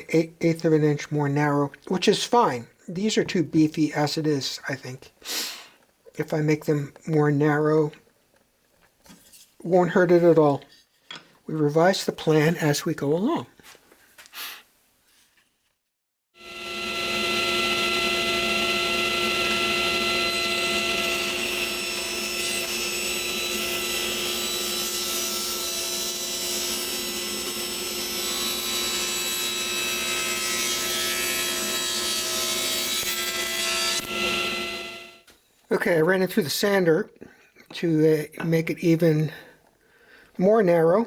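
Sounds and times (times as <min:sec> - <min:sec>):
drum sander grinding wood: 0:16.4 - 0:35.2.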